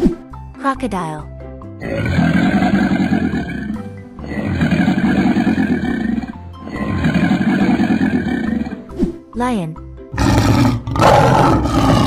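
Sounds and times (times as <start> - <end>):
children's background music: 0.0 - 12.0
cartoon crocodile growl: 1.8 - 8.8, 10.2 - 12.0.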